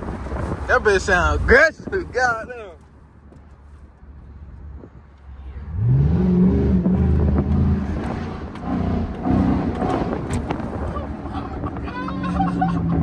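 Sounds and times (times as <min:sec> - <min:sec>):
car engine revving: 0:05.5 - 0:13.0.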